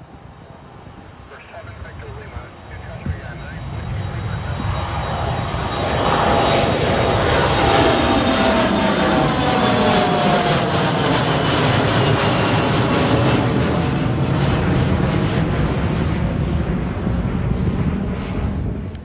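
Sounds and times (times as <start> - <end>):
jet engine whine: 0.0 - 19.0
heavy low rumble: 1.0 - 7.3.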